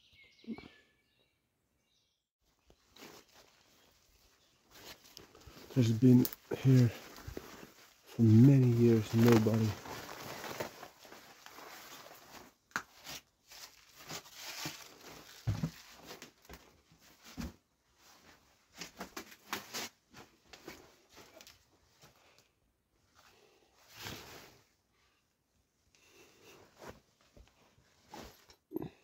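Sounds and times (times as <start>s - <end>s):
footsteps through dry undergrowth: 2.6s - 12.6s.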